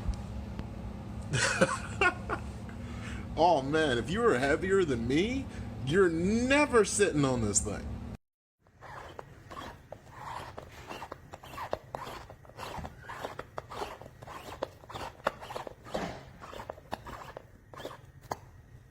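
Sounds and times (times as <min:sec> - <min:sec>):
objects being handled: 0:08.7 - 0:18.6.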